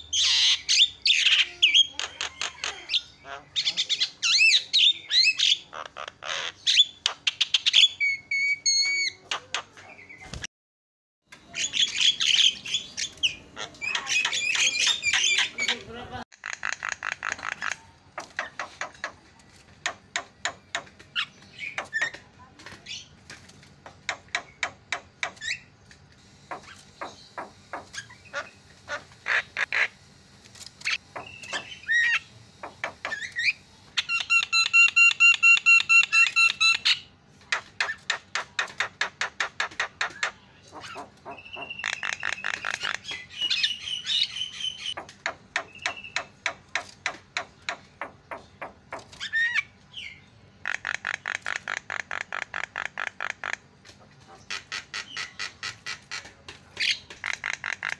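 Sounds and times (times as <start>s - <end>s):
bird chattering and whistling: 0.0s - 10.4s, 11.5s - 19.2s, 30.8s - 53.6s, 54.3s - 57.9s.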